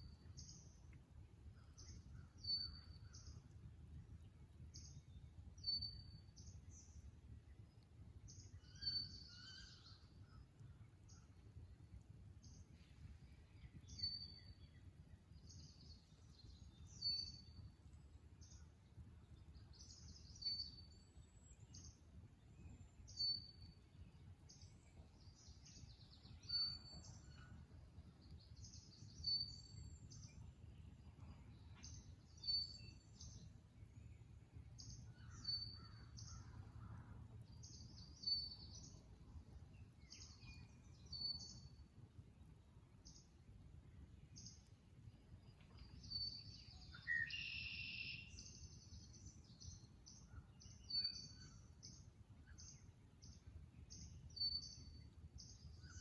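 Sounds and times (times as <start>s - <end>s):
faint low rumble: 0.0s - 47.1s
faint bird calls: 8.6s - 10.2s
bird repeating high song: 46.1s - 48.6s.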